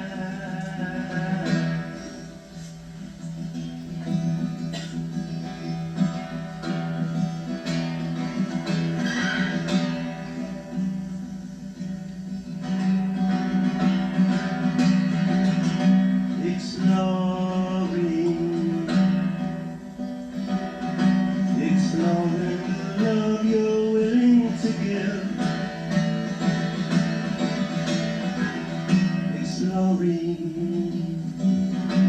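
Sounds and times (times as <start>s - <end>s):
person singing: 0.0s - 2.8s, 16.0s - 19.8s, 20.4s - 25.9s, 28.4s - 32.0s
acoustic guitar playing: 0.0s - 32.0s.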